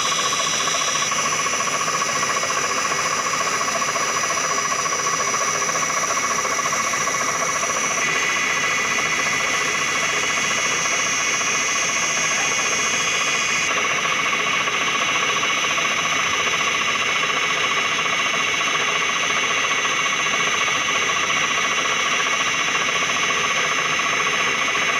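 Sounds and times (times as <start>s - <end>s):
noisy hum: 0.0s - 13.8s
milling machine whine: 0.0s - 24.9s.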